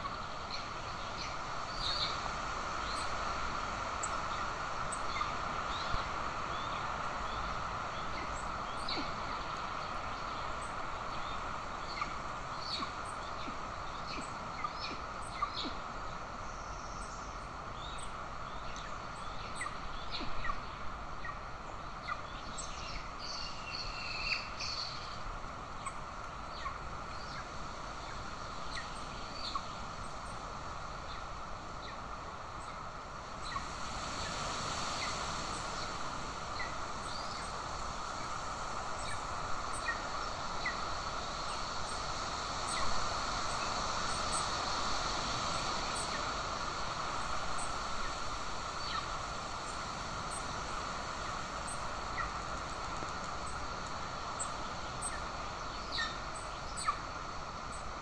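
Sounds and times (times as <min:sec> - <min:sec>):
small birds chirping: 0:00.0 - 0:32.0, 0:47.1 - 0:58.0
steady hiss: 0:00.0 - 0:58.0.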